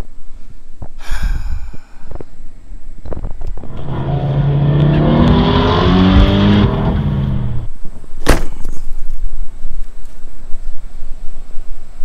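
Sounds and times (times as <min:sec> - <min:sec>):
car engine revving: 0:03.5 - 0:07.7.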